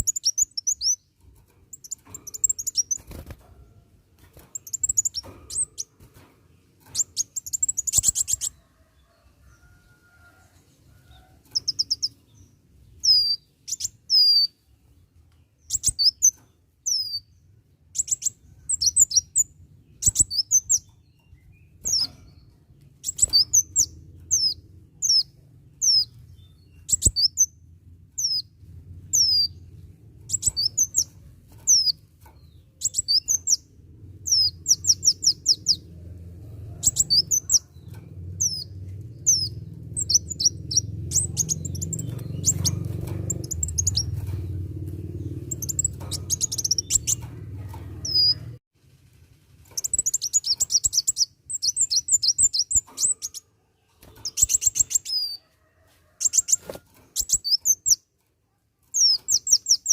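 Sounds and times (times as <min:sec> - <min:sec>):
sunbird chirping song: 0:00.0 - 0:03.3, 0:04.5 - 0:05.9, 0:06.8 - 0:08.6, 0:11.1 - 0:35.8, 0:36.8 - 0:47.3, 0:49.7 - 0:53.5, 0:57.2 - 0:58.1, 0:58.8 - 0:59.9
low hum: 0:21.4 - 0:49.8.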